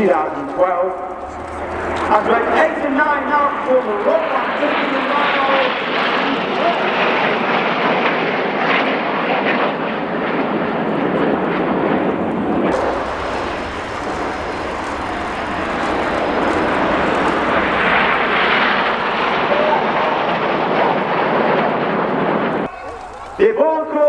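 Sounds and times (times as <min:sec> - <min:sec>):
jet engines roaring overhead: 0:00.0 - 0:24.0.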